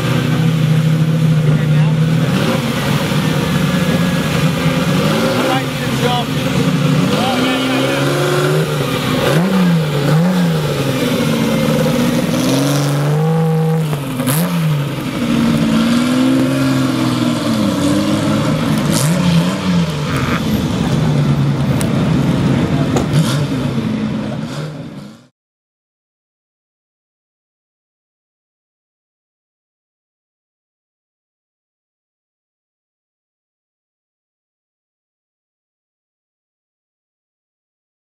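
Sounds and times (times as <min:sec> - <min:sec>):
racing car engine accelerating: 0:00.0 - 0:25.3.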